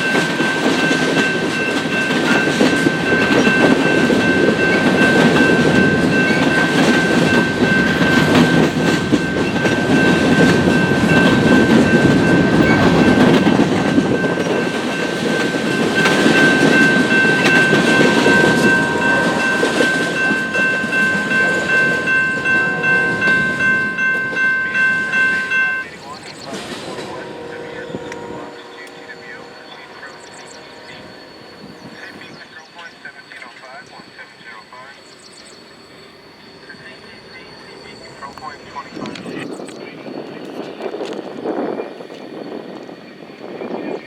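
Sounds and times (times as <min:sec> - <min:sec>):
train wheels clattering: 0:00.0 - 0:29.0
high-pitched tone: 0:00.0 - 0:32.5
train rumble: 0:00.0 - 0:44.0.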